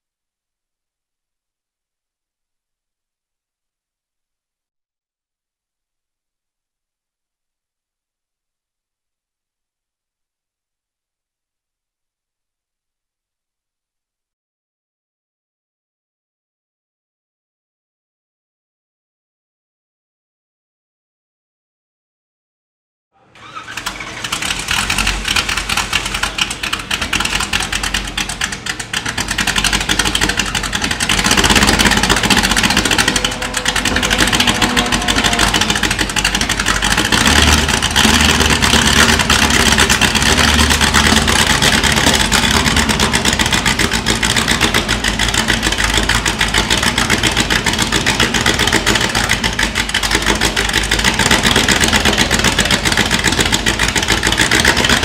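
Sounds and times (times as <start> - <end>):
race car engine starting and running: 23.2 - 55.0.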